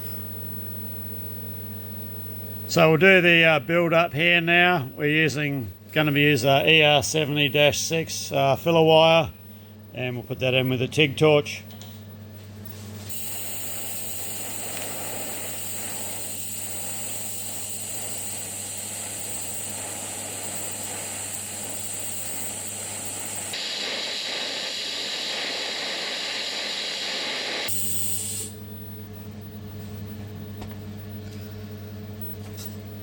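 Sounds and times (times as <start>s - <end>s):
low electrical hum: 0.0s - 33.0s
welding arc hissing: 12.6s - 28.8s.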